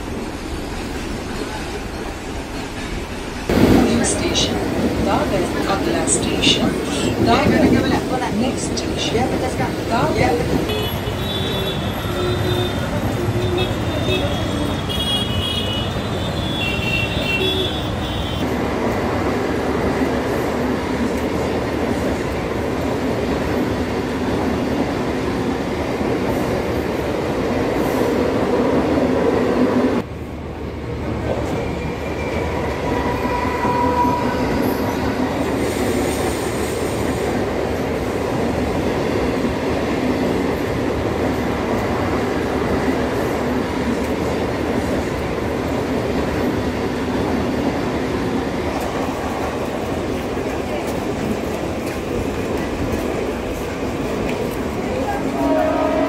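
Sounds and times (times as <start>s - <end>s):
train wheels and carriage rumbling: 0.0s - 56.0s.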